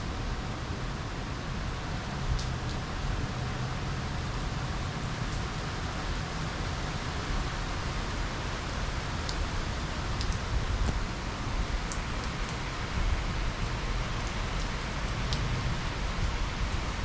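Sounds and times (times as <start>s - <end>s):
rain hiss: 0.0s - 17.0s.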